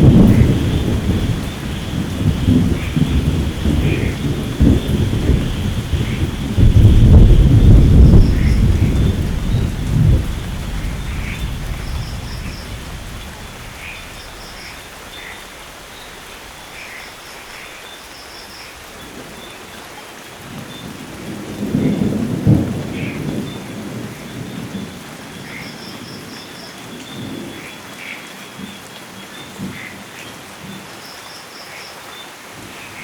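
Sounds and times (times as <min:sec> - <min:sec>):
rolling thunder: 0:00.0 - 0:16.8, 0:21.2 - 0:25.0
steady rain: 0:00.0 - 0:33.0.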